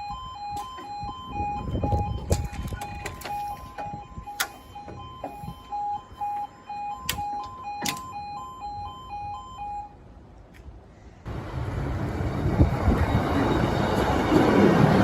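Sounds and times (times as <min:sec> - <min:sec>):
level crossing alarm warbling: 0:00.0 - 0:10.0.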